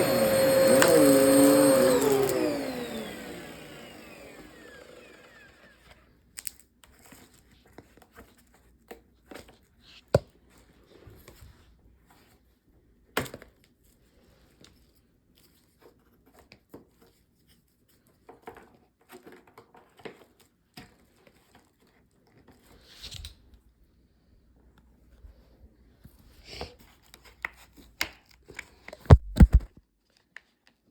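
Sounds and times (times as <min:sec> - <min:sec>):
sharp clicks or knocks: 0:29.1 - 0:29.7.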